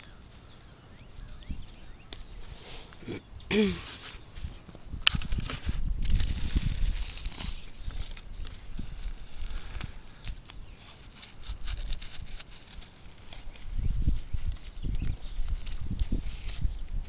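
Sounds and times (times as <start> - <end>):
dry leaves rustling and crackling: 5.2 - 17.0.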